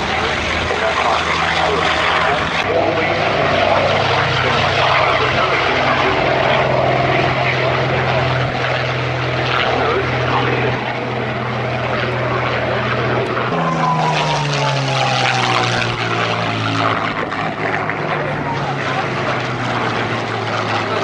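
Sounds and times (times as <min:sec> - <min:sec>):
propeller aircraft flying past: 0:00.0 - 0:21.0.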